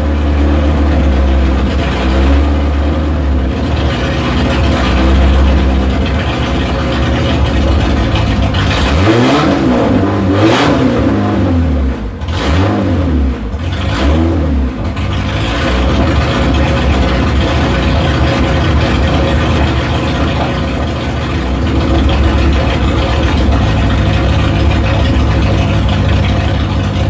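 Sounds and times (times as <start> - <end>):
engine idling and revving loudly: 0.0 - 27.0.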